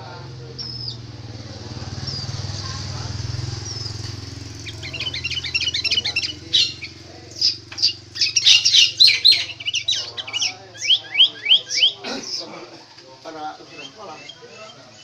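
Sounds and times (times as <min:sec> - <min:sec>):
bird singing whistled phrases: 0:00.6 - 0:01.0, 0:04.6 - 0:12.0.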